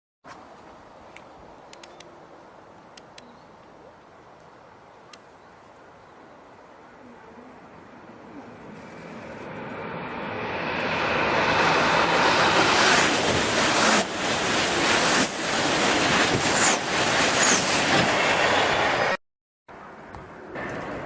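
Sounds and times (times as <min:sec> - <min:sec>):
train passing at speed: 0:06.5 - 0:21.0.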